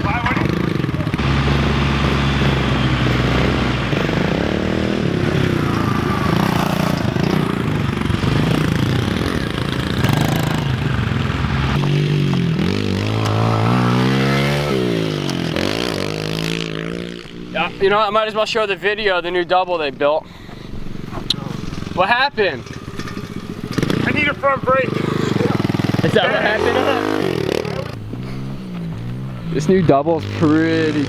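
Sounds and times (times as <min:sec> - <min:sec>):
pit bike engine revving: 0:00.0 - 0:31.0.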